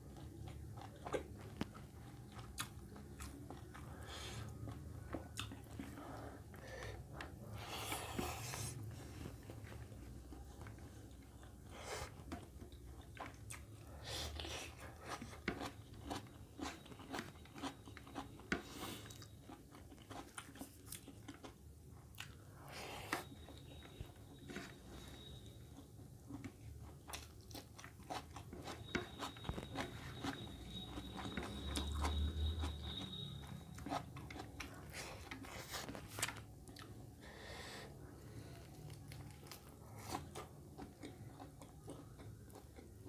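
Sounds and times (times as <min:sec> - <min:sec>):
chewing and crunching food: 0:00.0 - 0:43.0.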